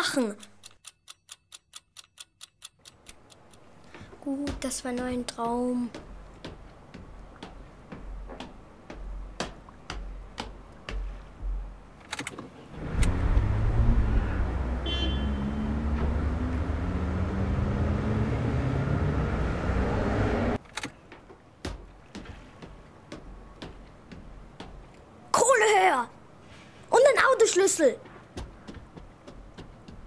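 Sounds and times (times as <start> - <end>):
soft thumps and clicks: 3.0 - 13.5
car engine starting and running: 12.7 - 20.6.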